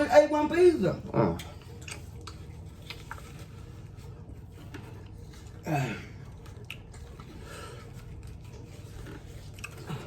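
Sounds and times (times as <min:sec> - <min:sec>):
low steady hum: 0:00.0 - 0:10.0
mouth and eating sounds: 0:01.4 - 0:10.0.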